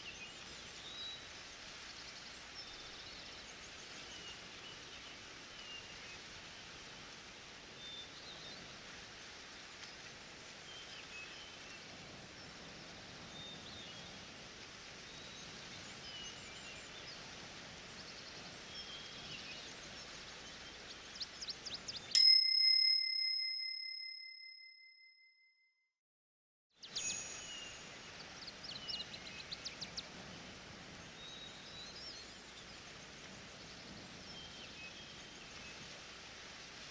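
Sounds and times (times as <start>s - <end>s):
forest rustling hiss: 0.0s - 22.1s, 26.8s - 36.9s
bell chime: 22.2s - 25.3s, 26.9s - 28.3s
small bird chirps: 26.8s - 30.0s.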